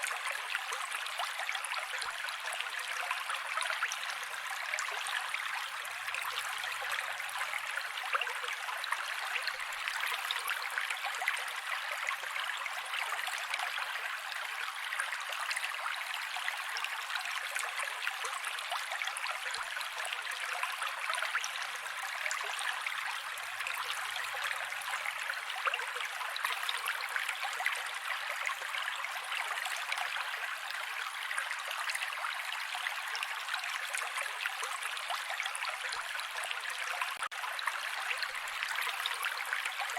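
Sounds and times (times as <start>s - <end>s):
creek water running over rocks: 0.0s - 39.9s.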